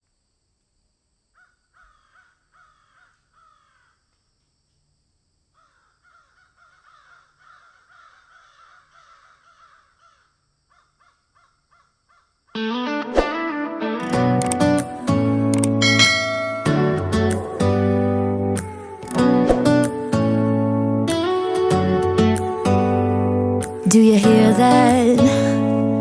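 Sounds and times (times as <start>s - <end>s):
guitar music: 12.6s - 26.0s.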